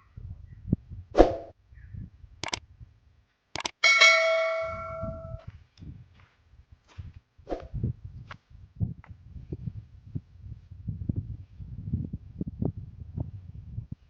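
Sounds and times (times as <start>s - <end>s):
sharp clicks: 2.4s - 2.6s, 3.5s - 3.8s
metallic bell-like ring: 3.8s - 5.4s.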